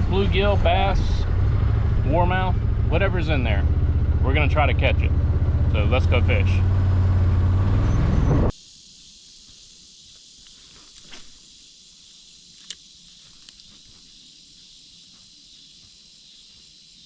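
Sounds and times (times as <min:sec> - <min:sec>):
high-pitched insect chorus: 0:08.5 - 0:17.0
small clicks: 0:12.5 - 0:13.8.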